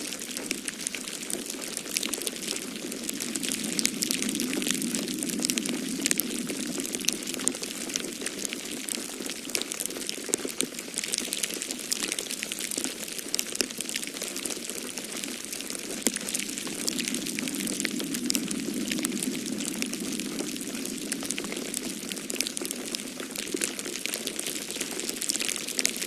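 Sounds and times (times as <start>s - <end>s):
wood fire crackling and popping: 0.0s - 26.0s
storm wind rushing: 0.2s - 9.2s, 15.0s - 24.9s.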